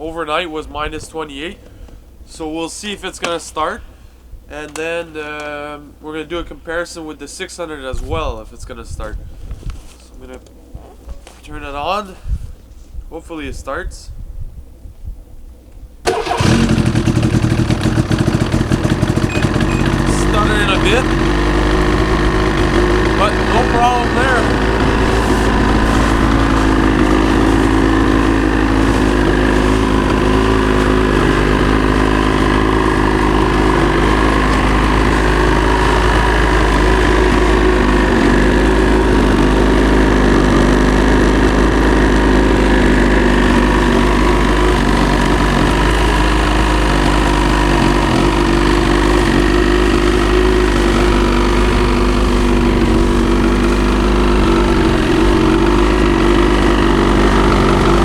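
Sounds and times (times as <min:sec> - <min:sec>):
snowmobile engine idling: 0:16.1 - 0:58.0.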